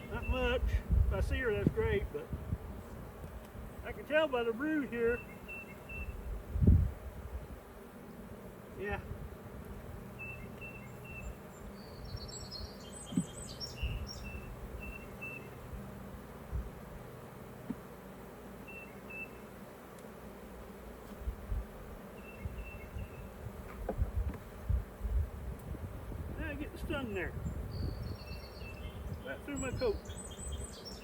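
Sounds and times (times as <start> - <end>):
honeybees buzzing: 0.0 - 31.0
bird chirps: 5.1 - 6.2, 10.2 - 15.6, 18.6 - 19.5, 22.2 - 23.3, 27.4 - 31.0.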